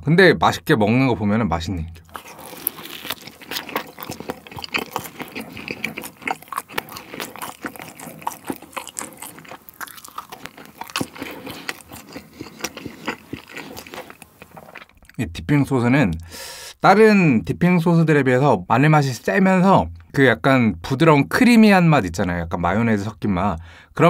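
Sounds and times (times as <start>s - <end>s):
person chewing pizza crust: 2.0s - 15.2s.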